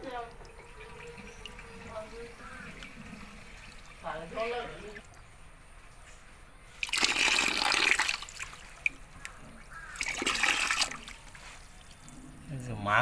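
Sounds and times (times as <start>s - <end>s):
pond water splashing: 6.8s - 12.1s.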